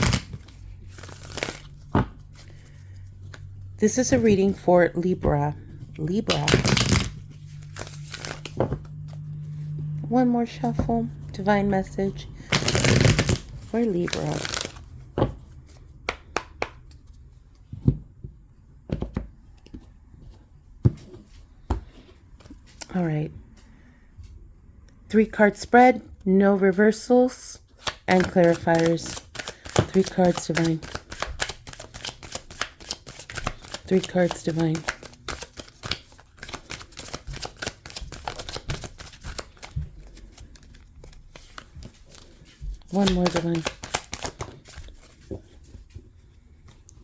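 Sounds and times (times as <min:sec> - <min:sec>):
cards being shuffled: 0:00.0 - 0:09.7, 0:12.4 - 0:17.2, 0:27.8 - 0:46.1.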